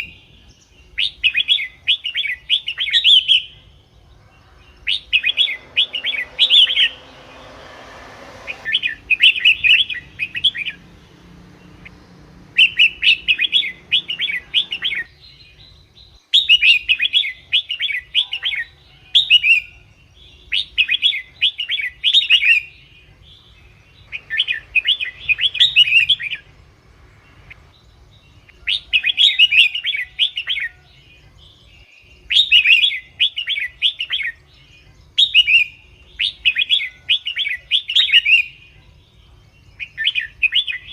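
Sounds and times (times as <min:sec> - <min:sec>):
bird chirping bubbling song: 0:08.7 - 0:40.9.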